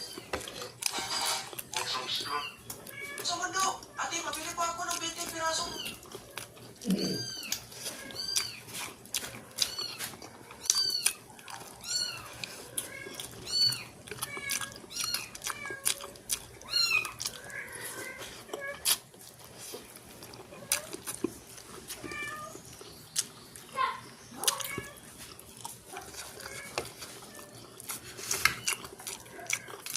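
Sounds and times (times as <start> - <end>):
cat mewing: 6.8 - 8.7.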